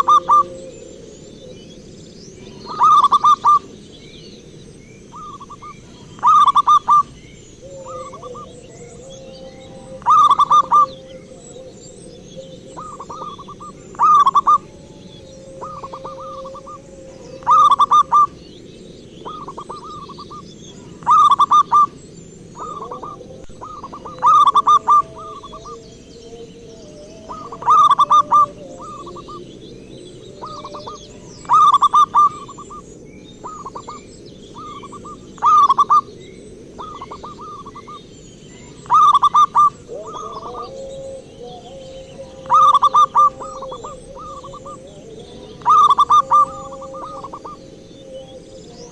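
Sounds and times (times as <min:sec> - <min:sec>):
dove cooing: 0:00.0 - 0:03.8, 0:05.1 - 0:18.6, 0:19.2 - 0:36.2, 0:36.8 - 0:48.9.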